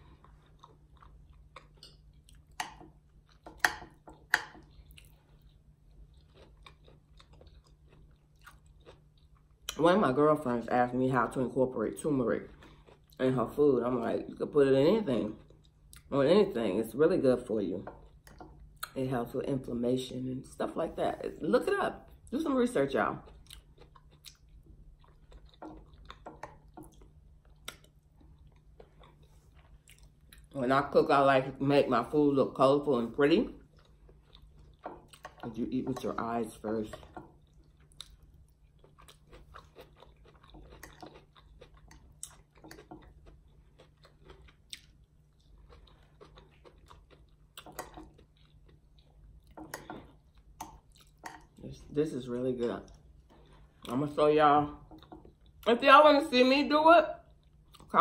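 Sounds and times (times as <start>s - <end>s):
person chewing: 0.0s - 9.8s, 12.4s - 13.2s, 15.2s - 16.1s, 17.8s - 19.0s, 23.1s - 30.6s, 33.5s - 52.0s, 52.7s - 55.7s, 57.2s - 58.0s.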